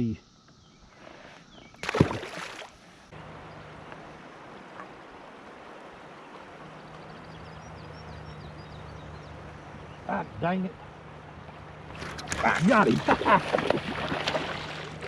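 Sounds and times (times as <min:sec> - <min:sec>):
faint bird chirps: 0:00.0 - 0:02.0
river water rushing: 0:02.3 - 0:15.0.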